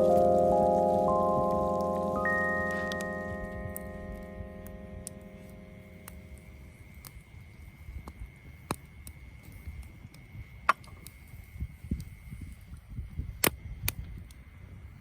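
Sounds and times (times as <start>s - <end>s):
campfire crackling and popping: 0.0s - 7.2s.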